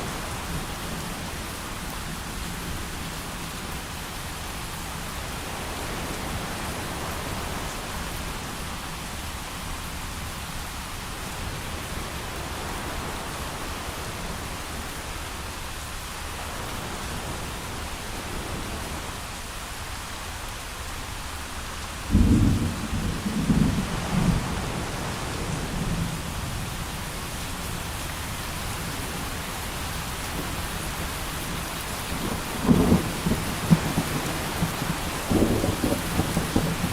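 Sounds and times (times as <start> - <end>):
heavy rain falling: 0.0 - 36.9
thunder clap rumbling: 22.1 - 26.4, 32.1 - 36.9.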